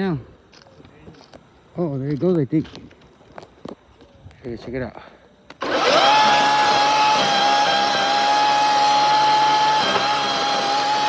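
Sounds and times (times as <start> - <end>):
electric motor whining: 5.6 - 11.0.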